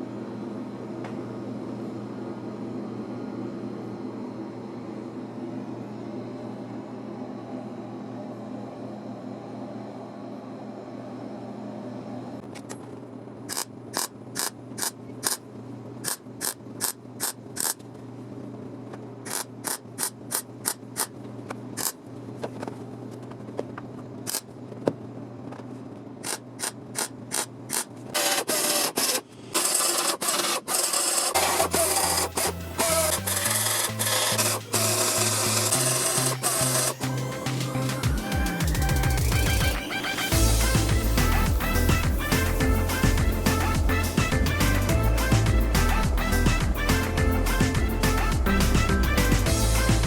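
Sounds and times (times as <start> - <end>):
music: 31.4 - 50.0.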